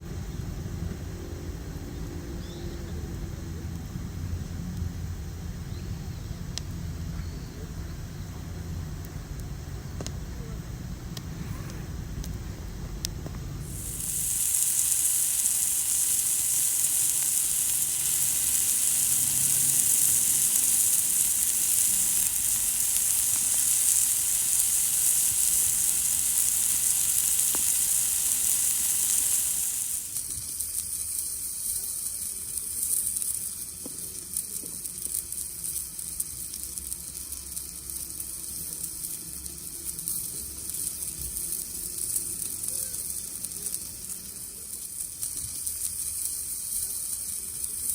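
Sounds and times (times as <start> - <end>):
food sizzling on griddle: 13.6 - 47.9.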